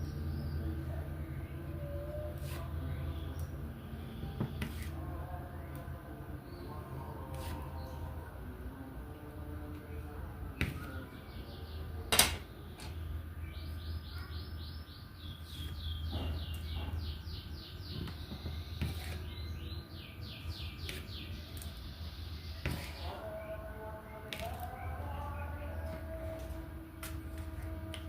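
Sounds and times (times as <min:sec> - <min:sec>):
bird chirping: 0:13.0 - 0:26.4.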